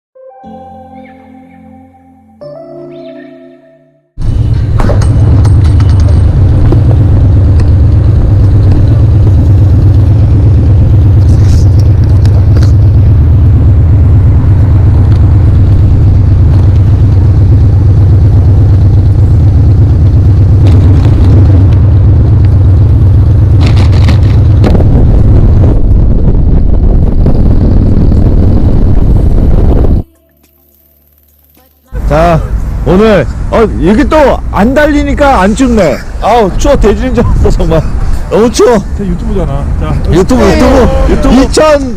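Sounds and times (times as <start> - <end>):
motorcycle engine rumble: 4.2 - 41.9
wind noise on microphone: 19.2 - 30.1.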